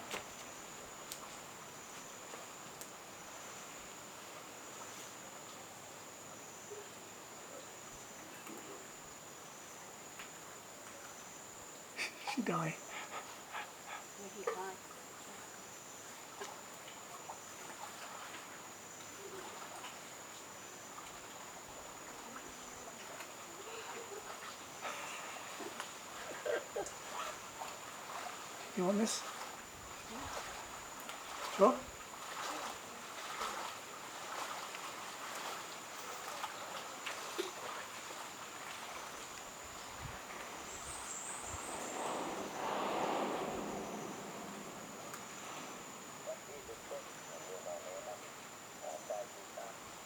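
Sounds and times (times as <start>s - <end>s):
steady hiss: 38.3s - 50.0s.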